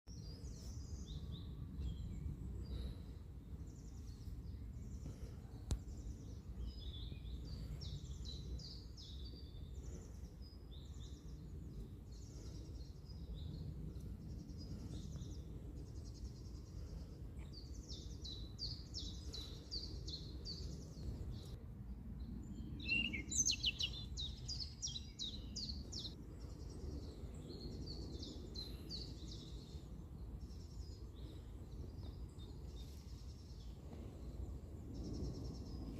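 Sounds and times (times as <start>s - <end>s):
low background rumble: 0.1s - 35.9s
small bird chirping: 22.6s - 26.2s.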